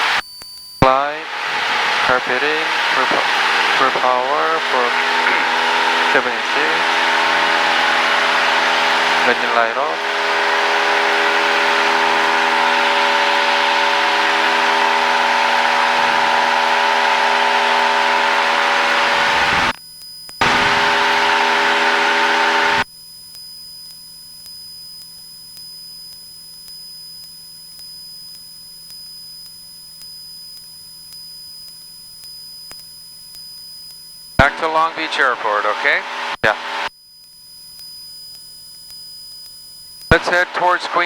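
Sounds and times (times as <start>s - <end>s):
airplane engine and propeller drone: 0.0s - 0.2s, 0.8s - 19.7s, 20.4s - 22.8s, 34.4s - 36.9s, 40.1s - 41.0s.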